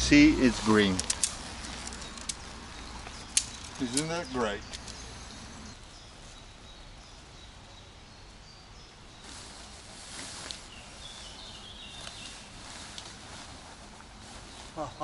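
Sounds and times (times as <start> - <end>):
rustling: 0.0 - 5.2, 9.2 - 15.0
steady background hiss: 0.0 - 15.0
small birds chirping: 0.1 - 15.0.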